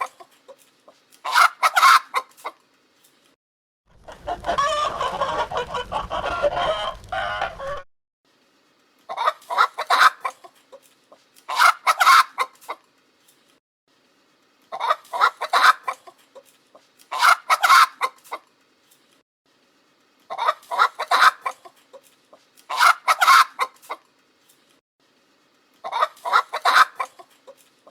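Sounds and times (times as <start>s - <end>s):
chickens clucking and squawking: 0.0s - 2.6s, 4.0s - 7.8s, 9.1s - 12.9s, 14.7s - 18.5s, 20.3s - 24.1s, 25.8s - 27.9s.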